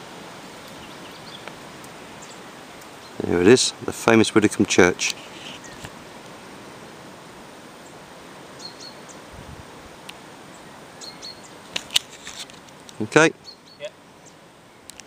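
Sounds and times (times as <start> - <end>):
steady hiss of air: 0.0 - 15.0
small bird chirping: 0.6 - 3.2, 5.3 - 5.9, 8.6 - 9.3, 10.5 - 11.6, 12.9 - 15.0.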